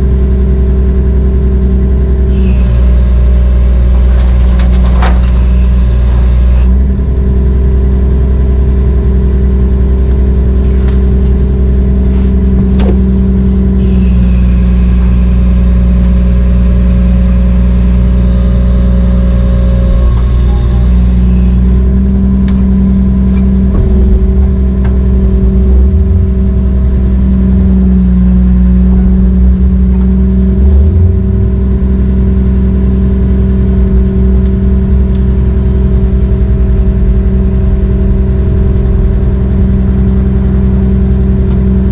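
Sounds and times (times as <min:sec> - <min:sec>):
heavy diesel engine under load: 0:00.0 - 0:41.9.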